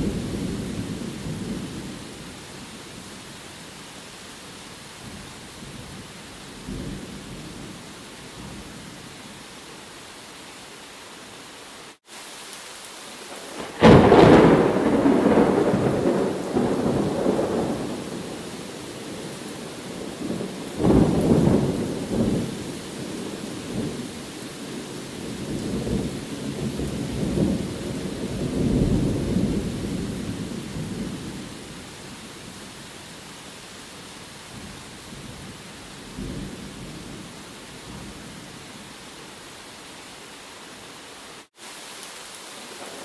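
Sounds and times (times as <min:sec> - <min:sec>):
rain hiss: 0:00.0 - 0:43.0
thunder rumbling: 0:13.5 - 0:24.0, 0:24.8 - 0:31.8.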